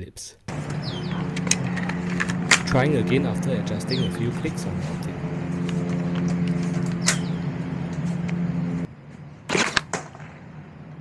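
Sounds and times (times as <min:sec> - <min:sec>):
steady humming drone: 0:00.5 - 0:09.0.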